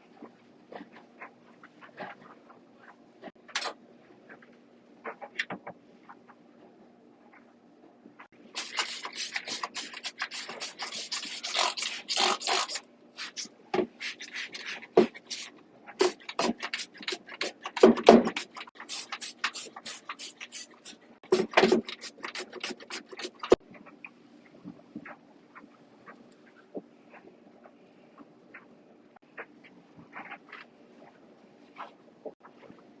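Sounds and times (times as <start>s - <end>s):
beatboxing: 8.6s - 17.6s.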